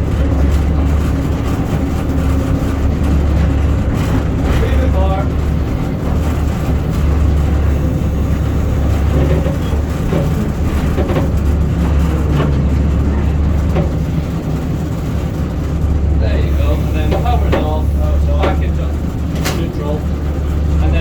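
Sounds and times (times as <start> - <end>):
diesel engine drone: 0.0 - 21.0
light clanks: 16.7 - 20.2.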